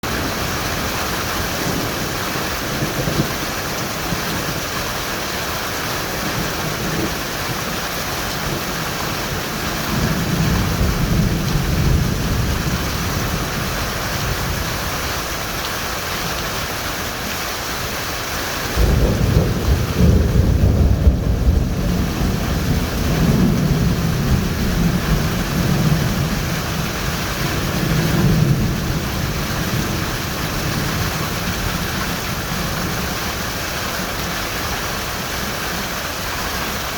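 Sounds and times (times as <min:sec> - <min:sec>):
heavy rain pouring: 0:00.0 - 0:36.9
rolling thunder: 0:08.3 - 0:15.0, 0:18.7 - 0:33.2.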